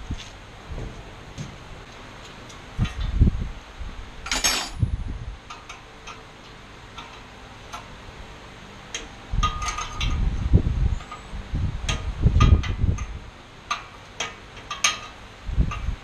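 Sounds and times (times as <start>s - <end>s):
metal tools clinking and clattering: 4.3s - 4.8s.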